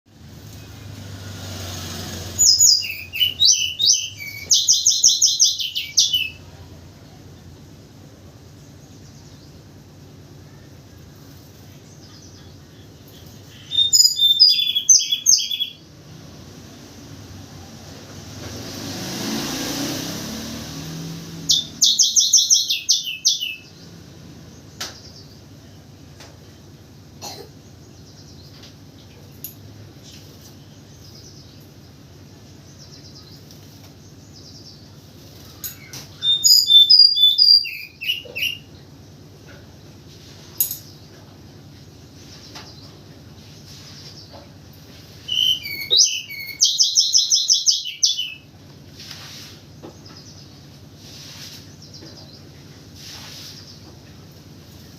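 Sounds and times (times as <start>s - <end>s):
bird singing fast high notes: 45.3s - 48.4s.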